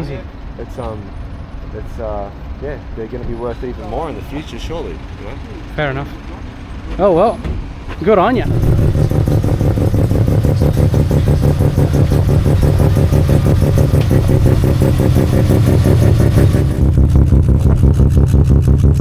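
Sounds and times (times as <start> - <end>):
car engine with choppy exhaust: 7.7 - 19.0.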